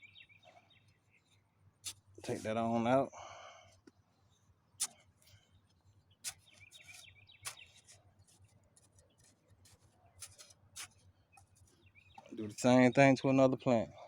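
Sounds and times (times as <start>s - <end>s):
bird chirping: 0.0s - 2.1s, 3.7s - 13.9s
trowel scraping soil: 1.8s - 2.7s, 4.8s - 5.4s, 6.2s - 12.9s.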